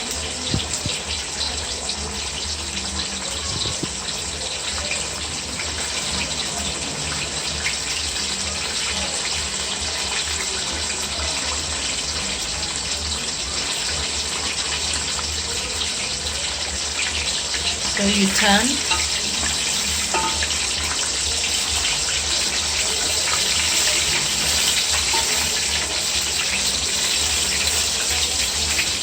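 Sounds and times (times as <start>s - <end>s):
chicken deep-frying in hot oil: 0.0s - 29.0s.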